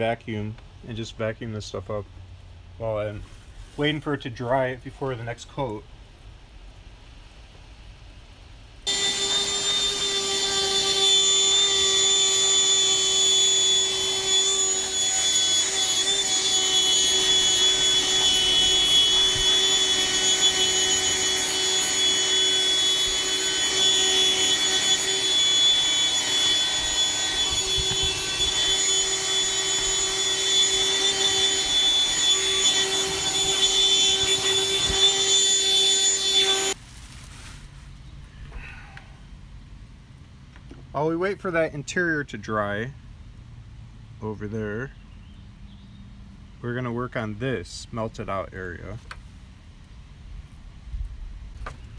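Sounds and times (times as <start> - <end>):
handheld vacuum motor whining: 8.9 - 36.8.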